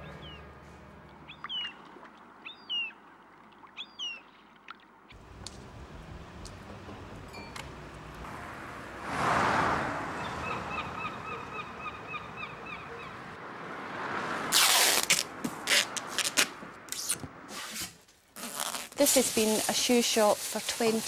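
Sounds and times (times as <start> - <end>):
bird calling rapidly: 1.3 - 3.0, 10.2 - 13.3
rushing noise: 5.2 - 15.4.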